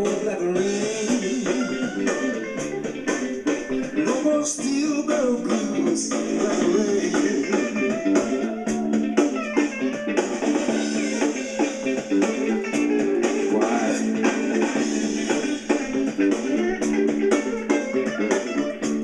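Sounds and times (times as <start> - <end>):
bass guitar: 0.0 - 19.0
drum kit: 0.0 - 19.0
electric guitar: 0.0 - 19.0.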